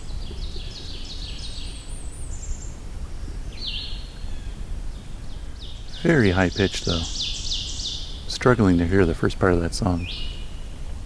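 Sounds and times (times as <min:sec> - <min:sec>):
faint forest hiss: 0:00.0 - 0:11.0
warbler singing high notes: 0:05.6 - 0:10.7.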